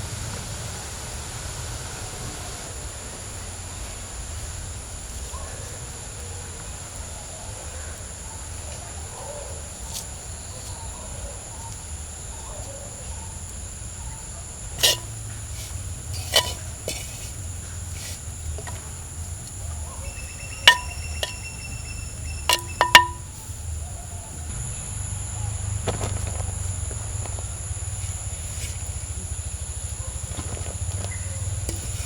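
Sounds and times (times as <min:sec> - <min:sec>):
metal utensils clinking: 0:14.8 - 0:18.9, 0:20.5 - 0:21.8, 0:22.5 - 0:23.4, 0:28.0 - 0:28.9, 0:31.7 - 0:32.0.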